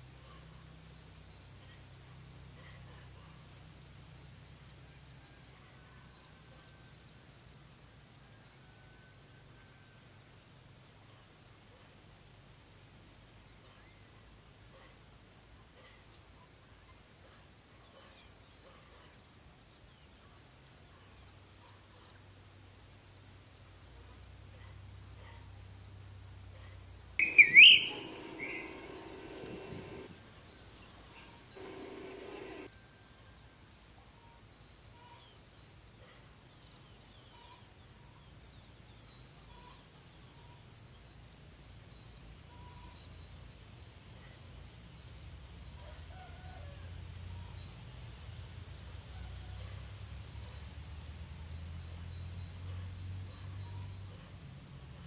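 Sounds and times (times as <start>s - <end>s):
birdsong: 0.0s - 7.7s, 15.8s - 22.2s, 23.9s - 43.5s
songbird chirps and whistles: 27.2s - 30.1s.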